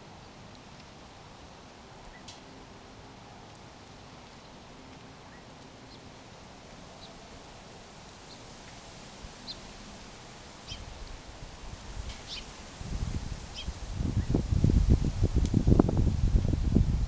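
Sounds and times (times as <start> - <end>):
outdoor background hiss: 0.0 - 17.0
faint bird chirps: 10.6 - 10.9.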